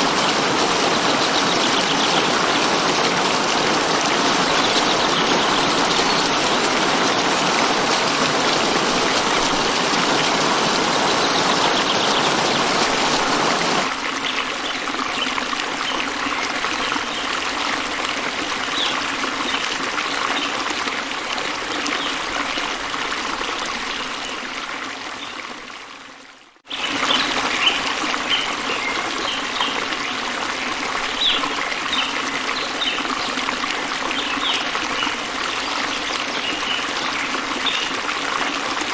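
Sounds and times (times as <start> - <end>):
birds chirping: 0.0 - 13.9
running water: 0.0 - 38.9.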